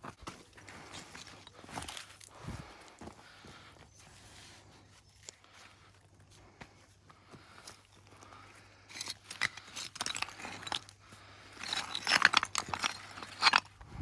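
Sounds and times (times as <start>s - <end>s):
stones clinking and knocking: 0.2s - 2.3s, 8.9s - 14.0s.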